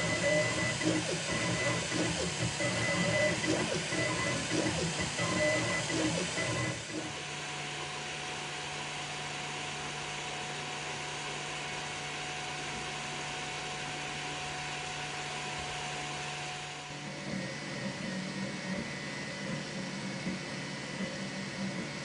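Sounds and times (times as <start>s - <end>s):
small fan whirring: 0.0s - 22.0s.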